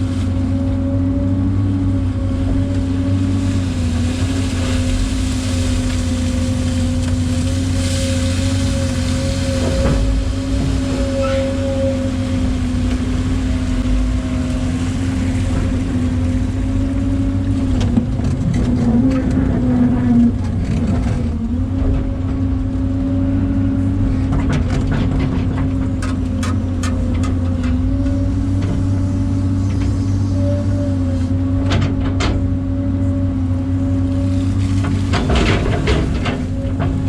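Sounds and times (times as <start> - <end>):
excavator diesel engine running: 0.0 - 37.0
sharp clanks and knocks: 34.8 - 37.0.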